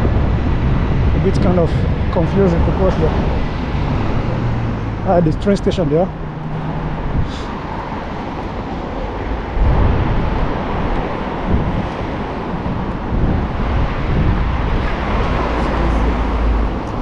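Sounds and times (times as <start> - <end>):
road traffic passing: 0.0 - 17.0
wind buffeting microphone: 0.0 - 17.0.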